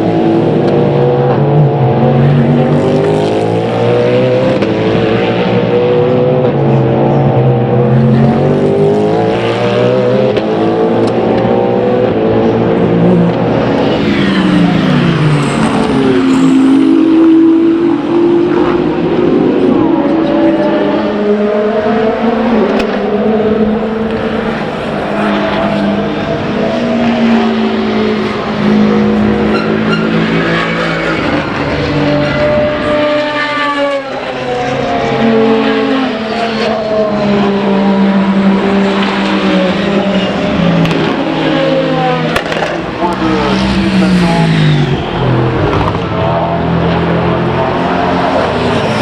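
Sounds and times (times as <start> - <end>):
race car engines running: 0.0 - 49.0
sharp crack: 42.4 - 43.6.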